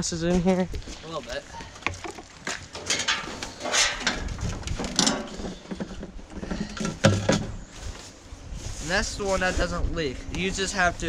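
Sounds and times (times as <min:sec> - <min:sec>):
clunks clicks and scrapes of handling: 0:01.8 - 0:07.6.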